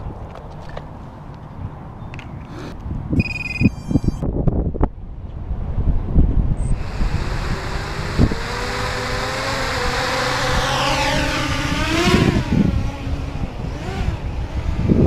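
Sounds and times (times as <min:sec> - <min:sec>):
low rumble of wind: 0:00.0 - 0:15.0
drone motors whining: 0:06.6 - 0:15.0.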